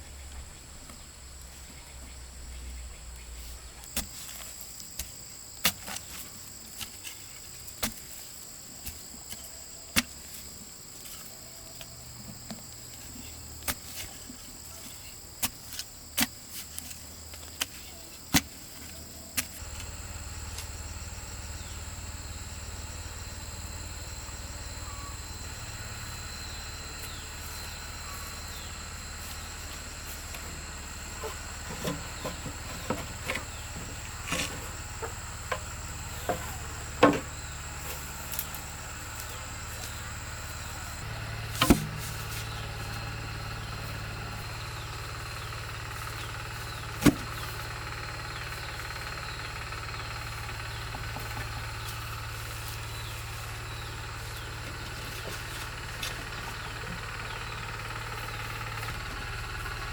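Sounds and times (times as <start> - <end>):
high-pitched insect calls: 16.9 - 59.9.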